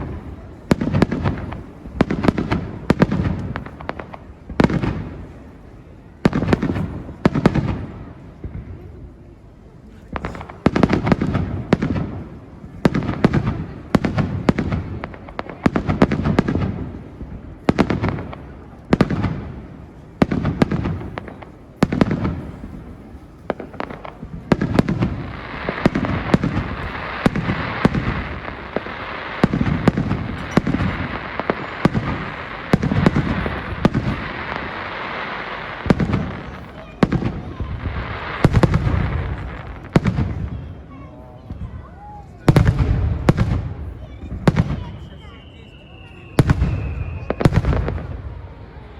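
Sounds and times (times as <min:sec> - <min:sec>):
fireworks bursting with booms: 0:00.0 - 0:48.9.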